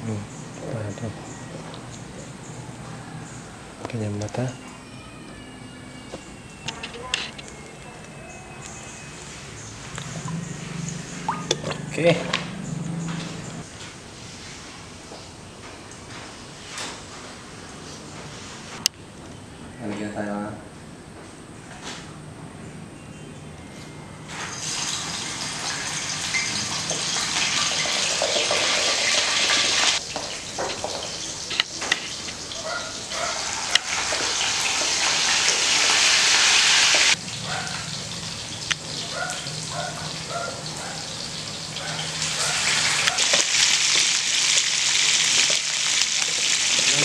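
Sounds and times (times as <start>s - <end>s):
meat sizzling in hot oil: 24.4s - 47.0s.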